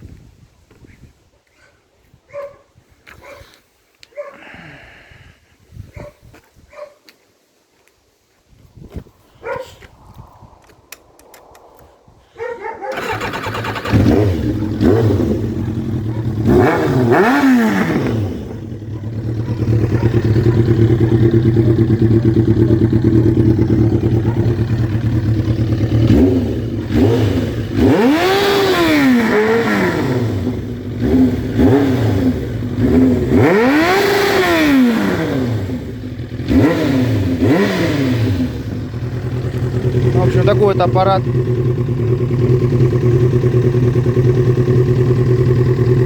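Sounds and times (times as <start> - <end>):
motorcycle engine idling and revving: 12.9 - 46.0.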